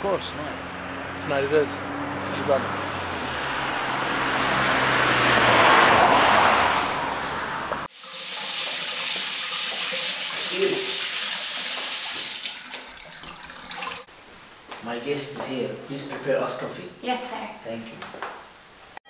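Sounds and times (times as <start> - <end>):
water running: 7.9 - 14.1.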